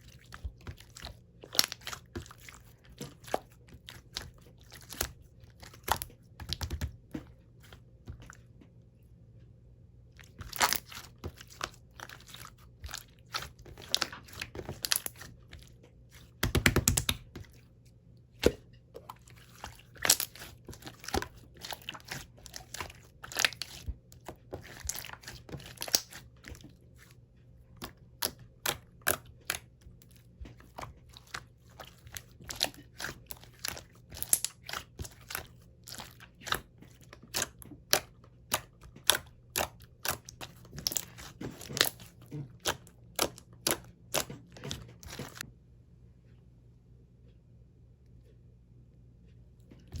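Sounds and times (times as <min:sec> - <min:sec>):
slime squished by hand: 0:00.0 - 0:07.0, 0:10.2 - 0:17.6, 0:18.4 - 0:26.7, 0:30.5 - 0:45.4.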